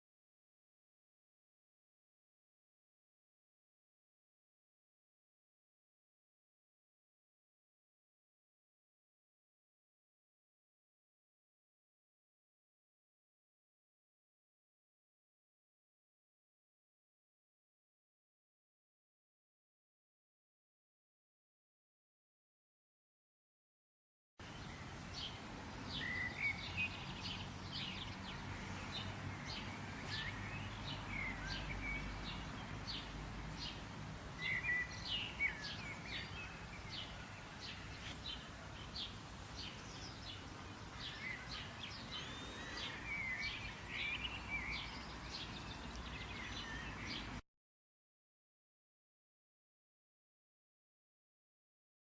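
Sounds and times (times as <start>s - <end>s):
low background noise: 24.4s - 47.4s
small birds chirping: 24.4s - 47.4s.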